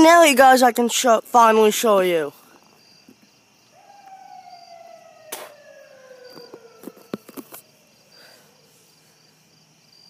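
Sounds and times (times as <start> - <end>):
faint crickets chirping: 0.0 - 10.0
siren winding down: 3.8 - 7.6.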